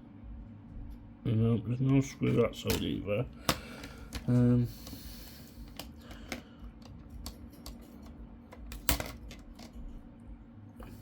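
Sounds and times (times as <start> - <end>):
clicks and taps of laptop parts: 5.7 - 9.8.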